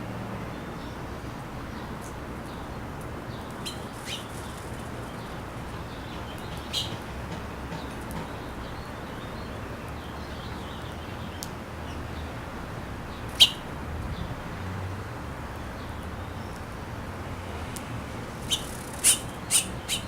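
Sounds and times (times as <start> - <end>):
small birds chirping: 1.7 - 14.3, 18.3 - 20.0.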